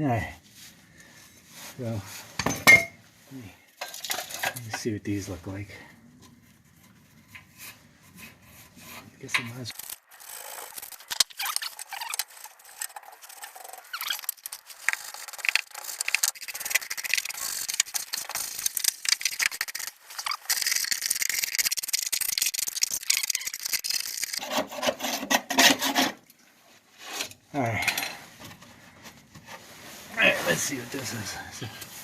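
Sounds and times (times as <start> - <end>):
packaging rustling and scraping: 9.5 - 26.1.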